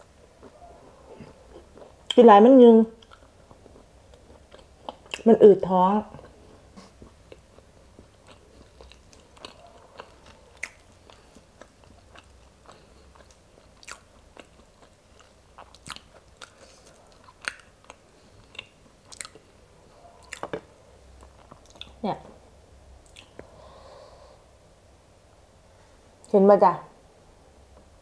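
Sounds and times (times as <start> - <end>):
chewing beans: 0.0 - 2.3, 2.9 - 5.3, 6.0 - 22.0.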